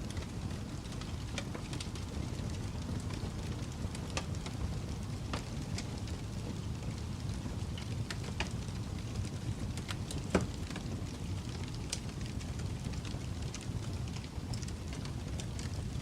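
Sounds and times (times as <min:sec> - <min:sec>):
fire crackling and popping: 0:00.0 - 0:16.0
flames rumbling in fireplace: 0:00.0 - 0:16.0.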